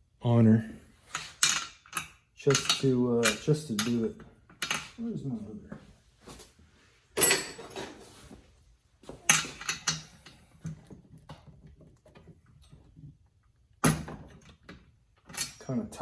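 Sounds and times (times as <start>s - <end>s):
metal hand tools clattering: 1.2s - 5.0s.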